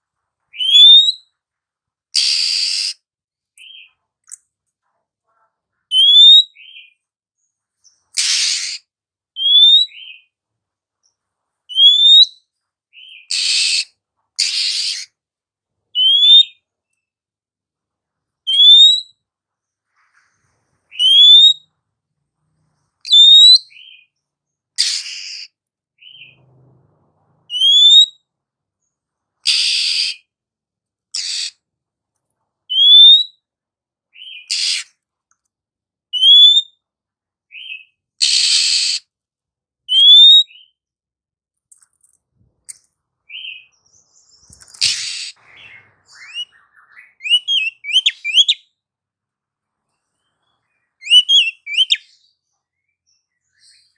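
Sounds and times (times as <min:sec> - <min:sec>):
bird rising whistle: 0:11.7 - 0:12.3, 0:20.9 - 0:21.6, 0:27.5 - 0:28.1, 0:51.0 - 0:52.0.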